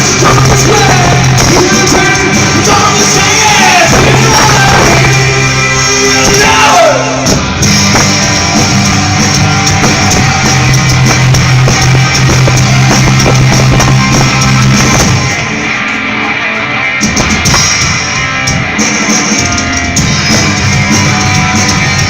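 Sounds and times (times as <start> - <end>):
held low bass notes: 0.0 - 15.8
electric guitar slide: 0.0 - 22.0
rock band playing loud: 0.0 - 22.0.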